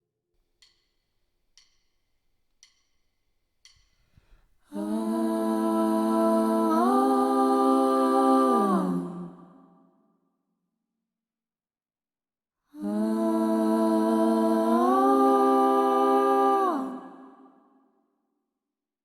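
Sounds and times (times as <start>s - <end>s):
light clicks counting in: 1.6s - 2.0s, 2.6s - 4.0s.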